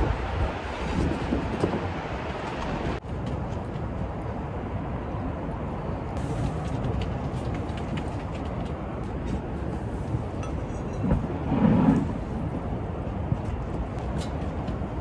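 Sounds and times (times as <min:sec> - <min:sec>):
strong wind blowing: 0:00.0 - 0:15.0.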